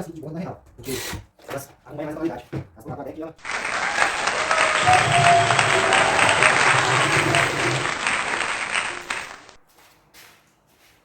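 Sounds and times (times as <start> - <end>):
applause: 3.4 - 9.6.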